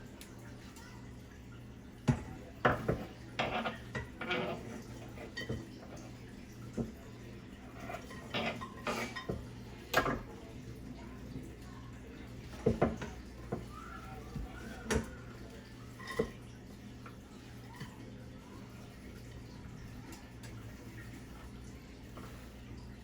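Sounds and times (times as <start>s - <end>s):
pots and utensils clattering: 2.0s - 6.2s, 7.6s - 10.4s, 12.4s - 16.6s.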